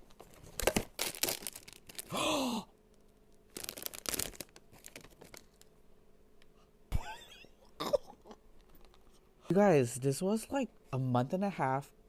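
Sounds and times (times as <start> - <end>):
package crackling and rustling: 0.0 - 2.1, 3.0 - 5.7.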